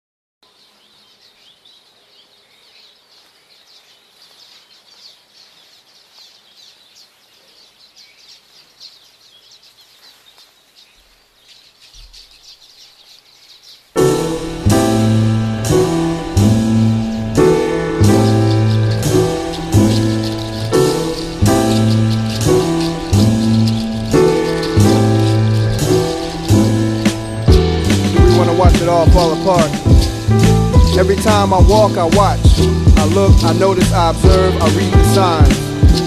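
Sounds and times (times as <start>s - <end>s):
background hiss: 0.4s - 36.0s
faint birds chirping: 0.4s - 36.0s
piano chords over heavy bass: 14.0s - 36.0s.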